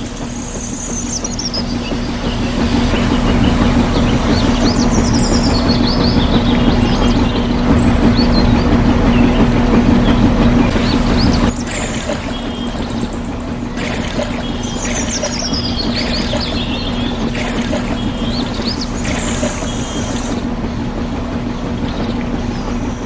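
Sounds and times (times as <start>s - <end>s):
water splashing from hose: 0.0s - 4.8s, 10.7s - 20.5s, 21.8s - 22.2s
birds chirping: 0.0s - 23.0s.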